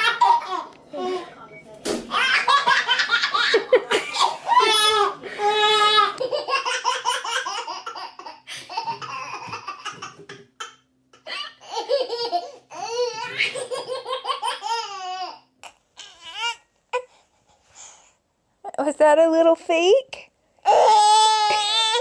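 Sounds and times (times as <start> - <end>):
baby giggling: 0.0 - 1.2, 2.1 - 15.4.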